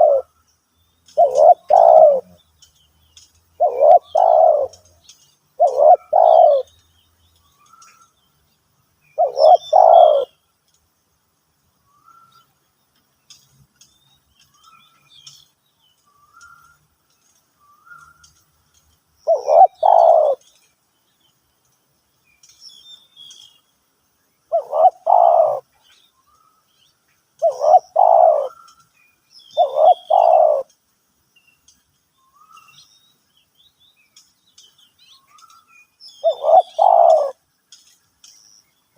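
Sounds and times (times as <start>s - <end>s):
dove cooing: 0.0s - 0.3s, 1.2s - 2.4s, 3.6s - 4.9s, 5.6s - 6.7s, 9.2s - 10.4s, 19.2s - 20.5s, 24.5s - 25.7s, 27.4s - 28.7s, 29.6s - 30.7s, 36.2s - 37.4s
small birds chirping: 0.0s - 38.9s.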